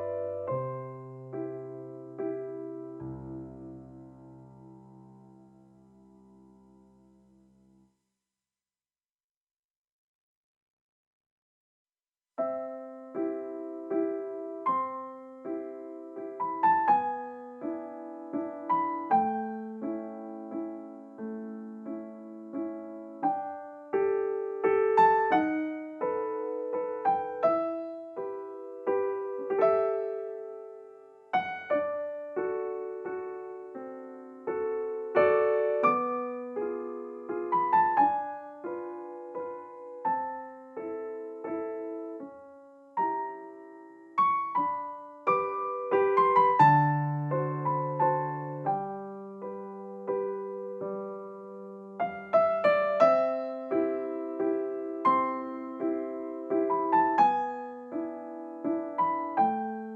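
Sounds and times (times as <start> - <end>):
piano music: 0.0 - 7.6, 12.4 - 59.9.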